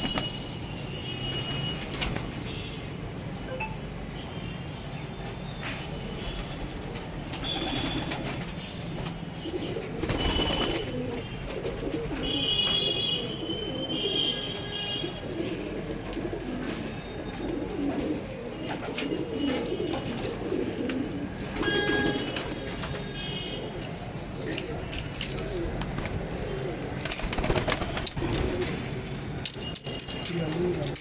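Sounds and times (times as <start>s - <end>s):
pigeons cooing: 9.0s - 29.0s.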